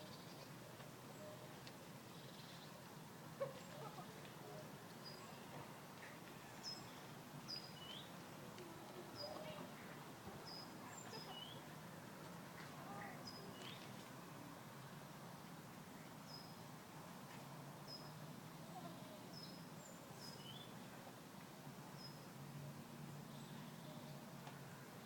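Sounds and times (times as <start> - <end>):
small birds chirping: 5.0 - 8.2, 9.0 - 11.7, 12.6 - 14.0.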